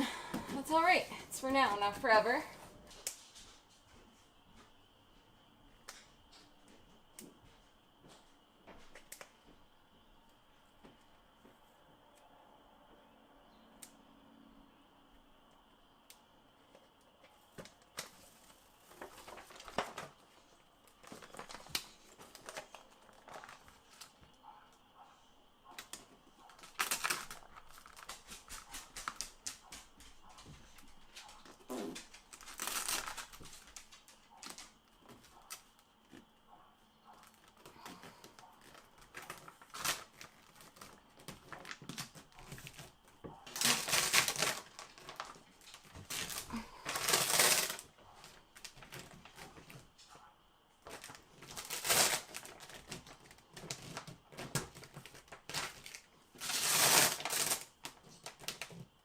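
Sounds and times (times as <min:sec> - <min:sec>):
crinkling: 0:16.6 - 0:59.0.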